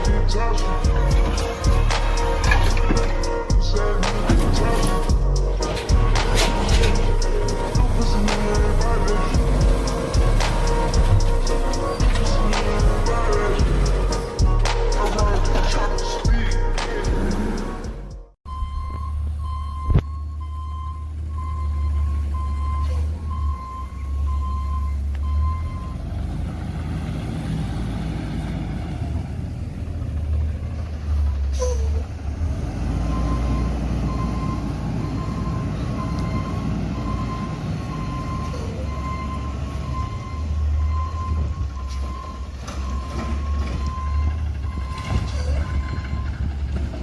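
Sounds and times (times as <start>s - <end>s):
garbage truck engine running: 0.0s - 27.1s, 29.1s - 47.0s
warning alarm beeping: 4.6s - 26.0s, 33.1s - 46.5s.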